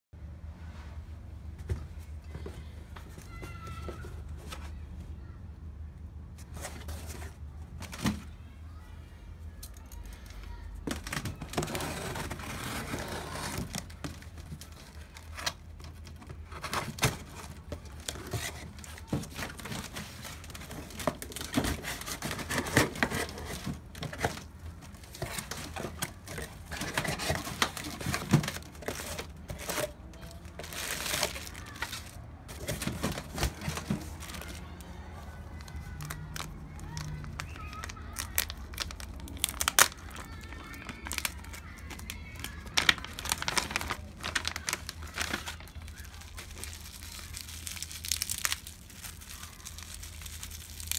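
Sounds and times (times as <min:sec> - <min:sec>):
packing material crinkling and tearing: 0:09.7 - 0:50.9.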